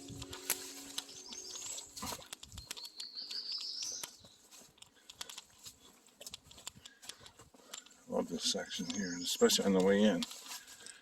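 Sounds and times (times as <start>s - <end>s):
light ticks: 0.0s - 8.0s, 8.8s - 11.0s
soft footsteps on trail: 0.0s - 11.0s
songbird trilling: 1.0s - 4.4s, 8.4s - 10.1s.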